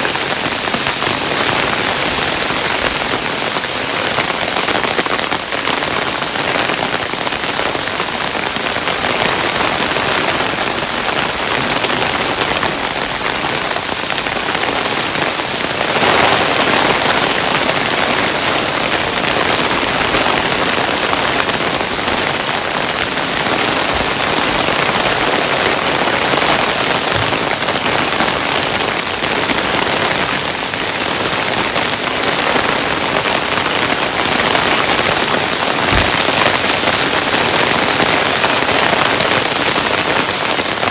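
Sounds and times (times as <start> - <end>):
hailstones falling: 32.4 - 40.9
low thud: 35.9 - 36.5.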